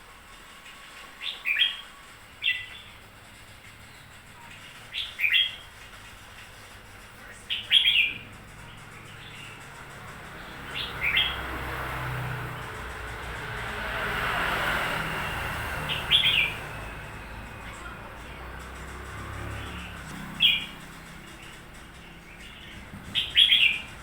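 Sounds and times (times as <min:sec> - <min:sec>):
broad rushing noise: 0:00.0 - 0:24.0
bird singing bright notes: 0:01.2 - 0:02.9, 0:07.5 - 0:12.2, 0:15.8 - 0:17.6, 0:18.9 - 0:24.0.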